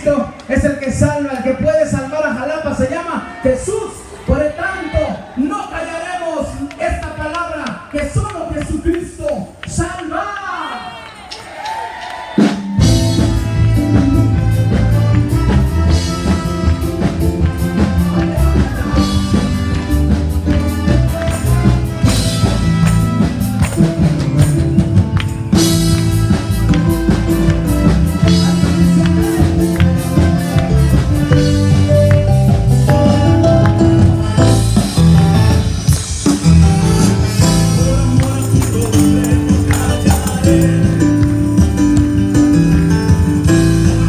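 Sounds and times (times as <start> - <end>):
band music: 12.3 - 44.0
drum kit beat: 12.4 - 44.0
bass guitar: 12.5 - 44.0.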